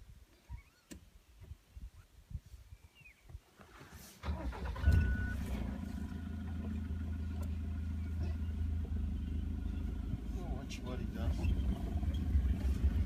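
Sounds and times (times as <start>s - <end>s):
vehicle engine starting and idling: 4.2s - 13.0s.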